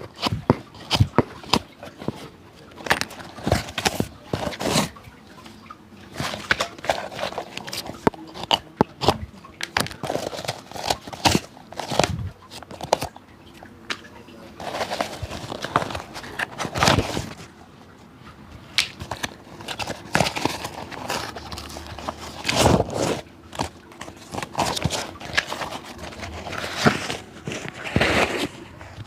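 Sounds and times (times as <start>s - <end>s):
scraping and rubbing on leather: 0.0s - 5.0s, 9.8s - 13.1s, 14.6s - 17.5s, 19.0s - 29.0s.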